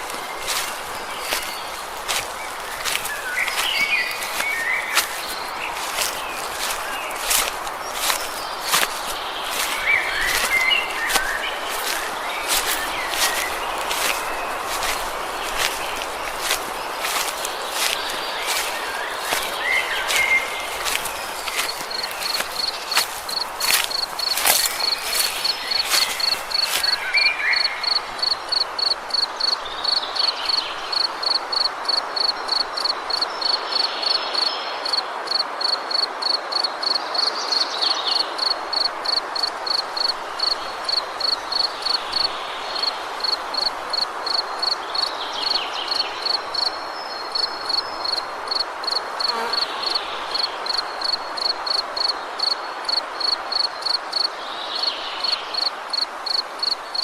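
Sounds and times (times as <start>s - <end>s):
woodland ambience hiss: 0.0s - 57.0s
cricket chirping: 9.5s - 33.9s, 38.4s - 45.1s, 45.8s - 54.3s.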